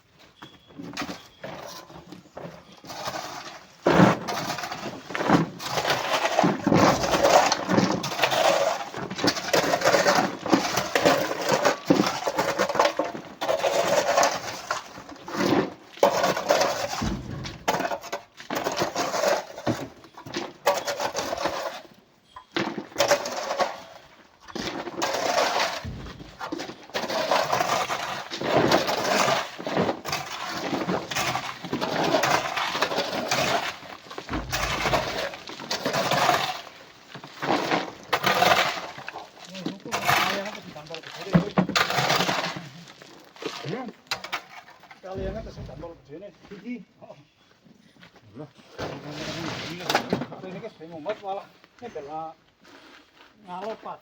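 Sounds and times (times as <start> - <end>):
rocks clattering into truck: 3.8 - 21.9, 22.5 - 46.2.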